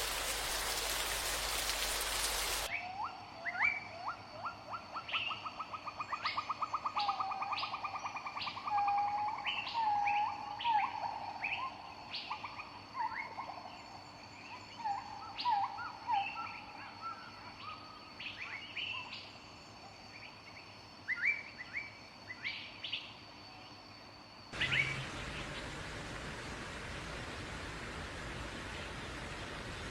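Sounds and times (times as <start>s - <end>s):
steady hiss: 0.0s - 2.7s, 24.1s - 29.9s.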